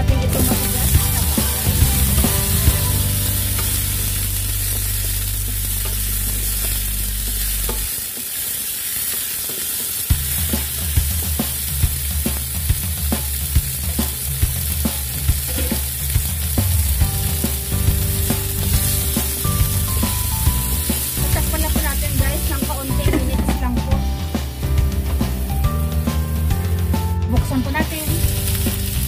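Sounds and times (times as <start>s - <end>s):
background music with bass: 0.0s - 8.0s, 10.1s - 29.0s
vegetables sizzling in oil: 0.0s - 29.0s.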